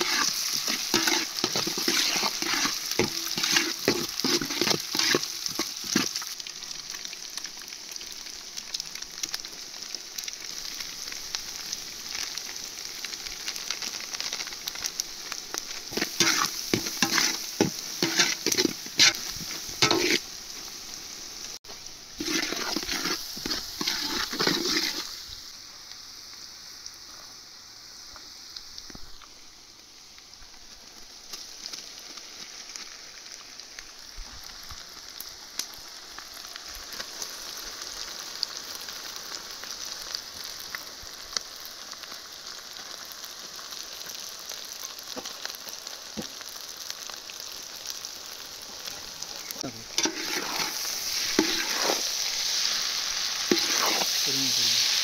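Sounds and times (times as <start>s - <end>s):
spatula scraping and tossing: 0.0s - 6.2s, 15.9s - 20.3s, 22.2s - 25.2s, 49.8s - 52.7s, 53.4s - 54.3s
noodles sizzling in a pan: 0.0s - 55.0s.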